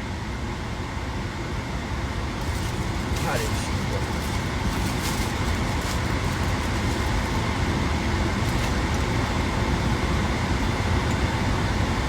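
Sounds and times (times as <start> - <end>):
car cabin rumble and hiss: 2.4 - 12.0.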